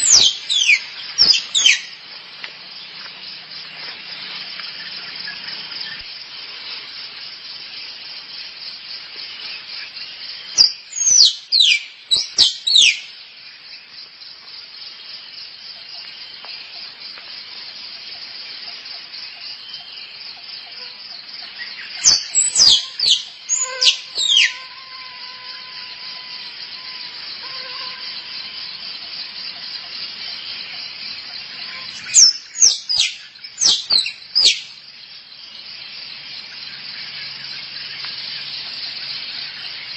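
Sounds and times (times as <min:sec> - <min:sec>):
high insect chirring: 0:00.0 - 0:13.2, 0:15.9 - 0:35.1
squirrel calls: 0:22.0 - 0:24.7.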